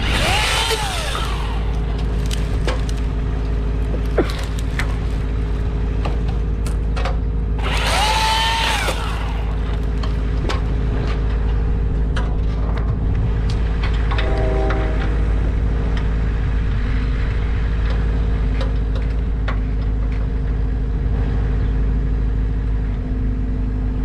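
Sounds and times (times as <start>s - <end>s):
engine revving: 0.0s - 5.9s, 7.6s - 11.2s.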